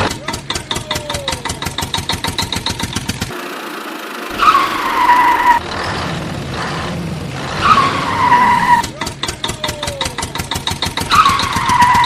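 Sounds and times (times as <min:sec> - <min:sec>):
tractor engine chugging: 0:00.0 - 0:12.0
skidding hiss: 0:03.4 - 0:08.9
tyre screech: 0:04.3 - 0:10.2, 0:10.9 - 0:12.0.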